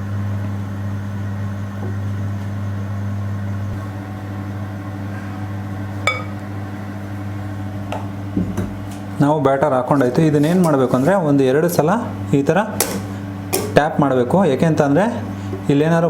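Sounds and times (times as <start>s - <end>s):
microwave oven humming: 0.0s - 16.0s
ringing clink: 6.1s - 6.4s.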